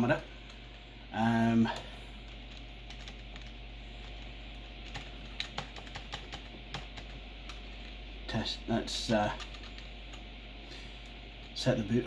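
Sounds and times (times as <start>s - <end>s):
keyboard keys clicking: 2.3s - 4.2s, 4.8s - 7.7s, 9.4s - 10.2s.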